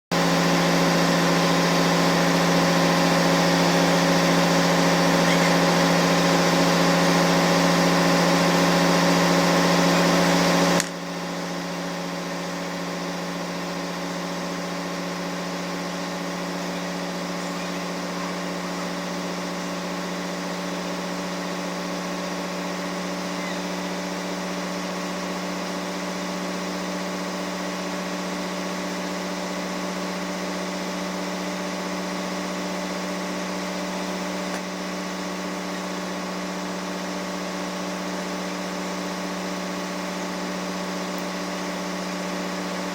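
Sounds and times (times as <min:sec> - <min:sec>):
machinery humming: 0:00.1 - 0:32.1.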